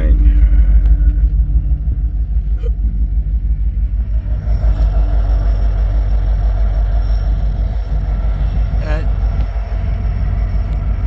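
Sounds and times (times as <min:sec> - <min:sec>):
diesel locomotive rumbling past: 0:04.0 - 0:11.0.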